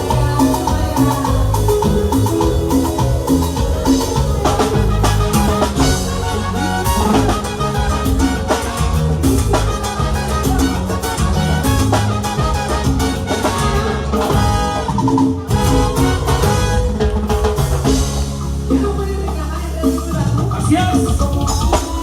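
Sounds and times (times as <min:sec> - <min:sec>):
live cumbia band playing: 0:00.0 - 0:22.0.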